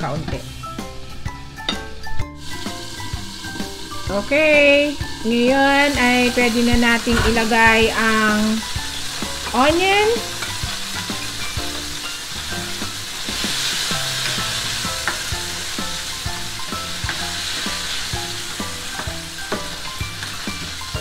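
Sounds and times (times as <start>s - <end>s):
chicken and onion sizzling in oil: 0.0s - 21.0s
spatula scraping and knocking pan: 5.9s - 20.9s.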